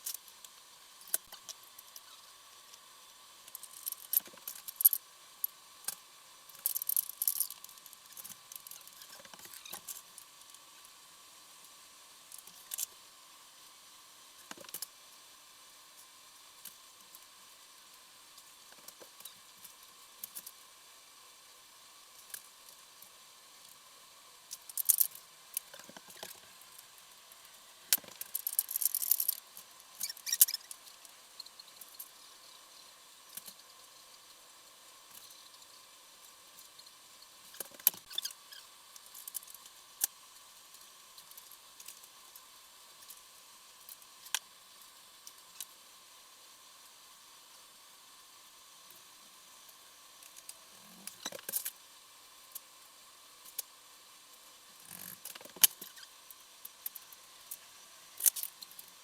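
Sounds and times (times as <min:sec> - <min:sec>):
hand tools and metal parts clinking: 0:27.9 - 0:29.4.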